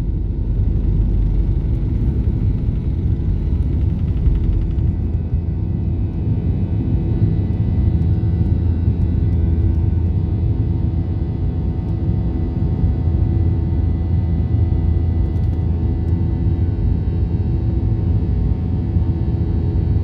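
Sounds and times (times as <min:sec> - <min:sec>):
airliner engines taking off: 0:00.0 - 0:14.0.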